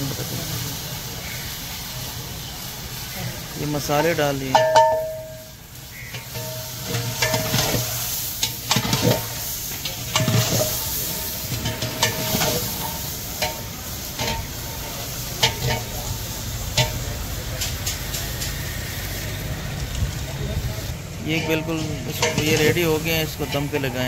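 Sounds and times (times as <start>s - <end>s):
food sizzling in pot: 0.0s - 24.0s
ladle scraping and knocking pot: 6.1s - 16.0s, 21.4s - 24.0s.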